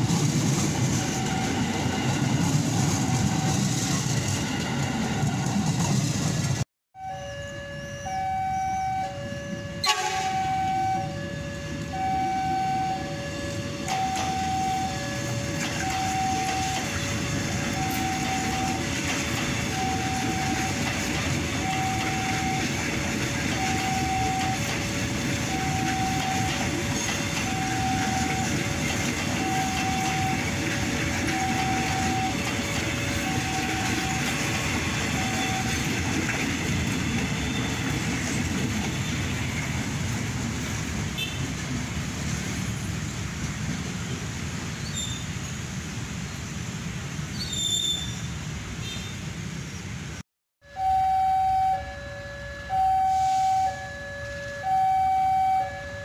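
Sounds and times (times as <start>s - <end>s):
train wheels rumbling on track: 0.0s - 6.6s, 9.5s - 50.2s
level-crossing alarm beeping: 0.6s - 5.8s, 7.0s - 39.5s, 50.6s - 56.0s.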